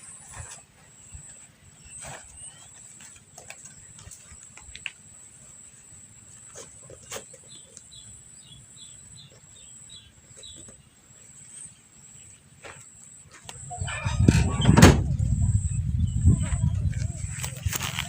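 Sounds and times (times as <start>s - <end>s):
bird chirping: 6.5s - 12.6s, 13.5s - 18.0s
low rumble: 13.6s - 18.0s.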